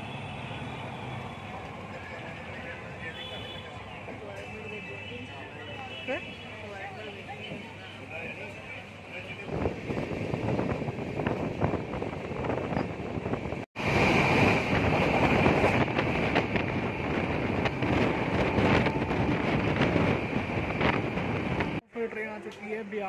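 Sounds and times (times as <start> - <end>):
express train running: 0.0 - 21.8
wind buffeting microphone: 9.4 - 21.8.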